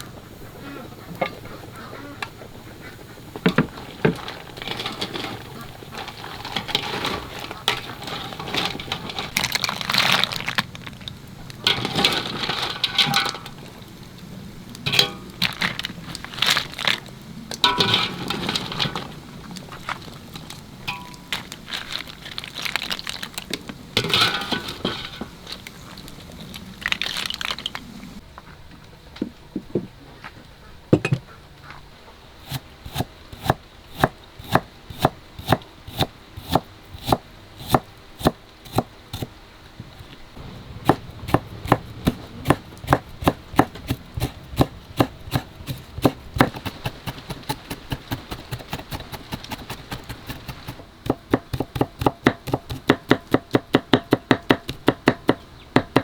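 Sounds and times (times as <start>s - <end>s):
rustling and crinkling handling: 1.2s - 28.3s.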